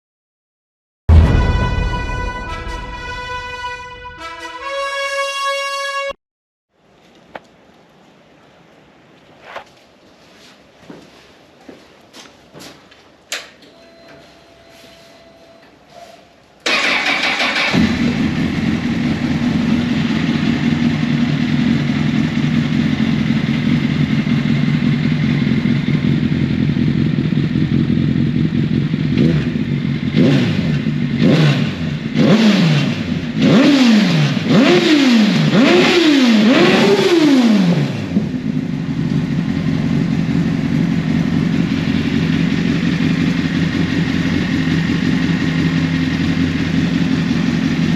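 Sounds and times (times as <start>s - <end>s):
motorcycle engine starting: 16.6s - 47.9s
engine revving: 16.7s - 25.1s, 26.8s - 47.9s
motorcycle engine idling: 17.6s - 31.2s, 38.2s - 47.9s.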